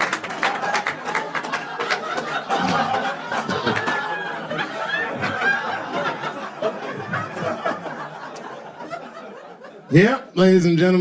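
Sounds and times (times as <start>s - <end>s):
scattered claps: 0.0s - 4.2s
audience laughing and cheering: 0.0s - 10.3s.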